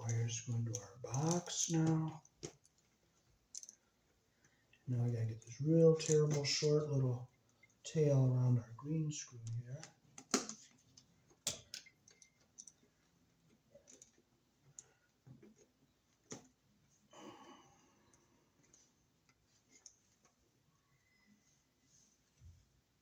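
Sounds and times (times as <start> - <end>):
wire handling clicks: 0.0 - 2.9, 3.5 - 3.8, 4.7 - 6.8, 9.4 - 12.9.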